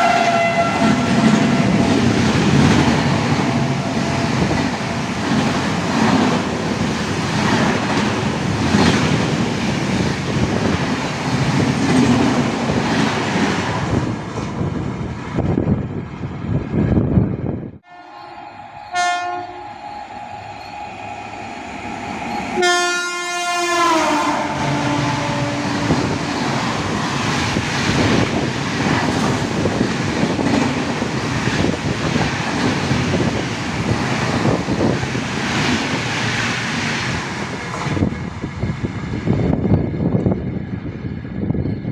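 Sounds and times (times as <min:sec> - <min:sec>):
train horn: 0:00.0 - 0:05.2, 0:17.8 - 0:27.0
train coaches rumbling past: 0:00.0 - 0:41.9.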